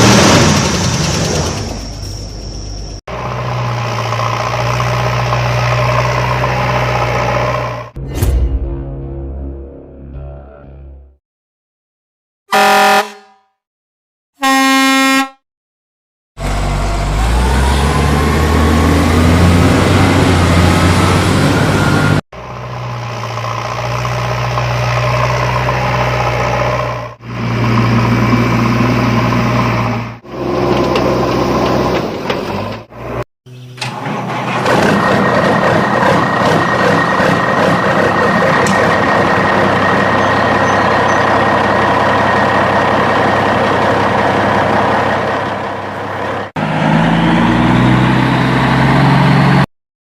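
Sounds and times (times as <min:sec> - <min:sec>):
vehicle horn blast: 0:12.5 - 0:13.6, 0:14.4 - 0:15.4
vehicle engine revving and idling: 0:16.4 - 0:32.0, 0:34.4 - 0:49.7.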